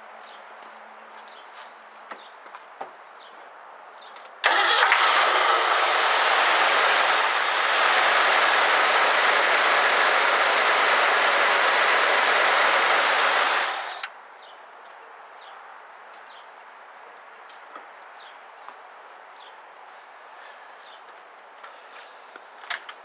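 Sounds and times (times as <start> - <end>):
car engine starting and running: 4.4 - 14.1.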